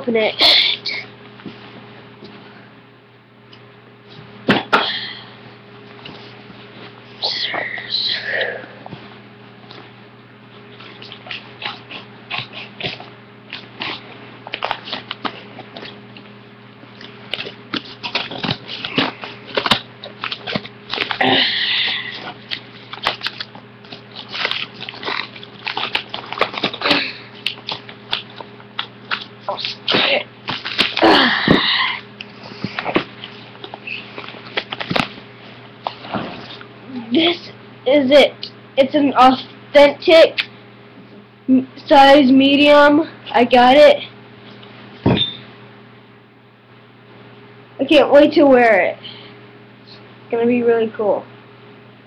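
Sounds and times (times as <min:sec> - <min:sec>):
steady low hum: 0:00.0 - 0:52.0
package wrapping rustling: 0:17.0 - 0:21.2, 0:21.9 - 0:31.2, 0:32.2 - 0:36.7
wrapping tearing: 0:17.0 - 0:31.3.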